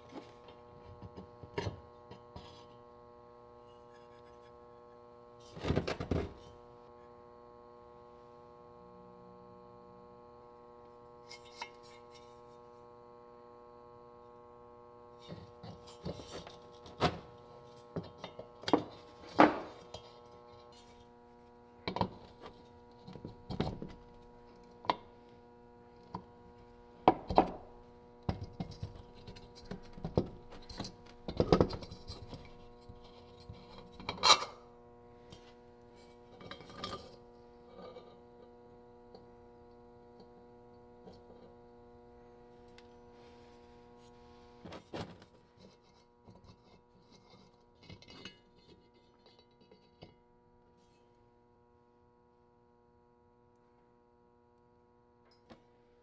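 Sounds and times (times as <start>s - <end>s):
metal lantern parts clinking: 33.8s - 34.6s.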